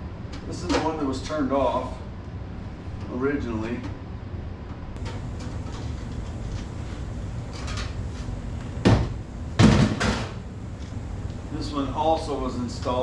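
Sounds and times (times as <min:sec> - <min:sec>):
steady low hum: 0:00.0 - 0:13.0
loud knock on cabinet: 0:08.8 - 0:10.3.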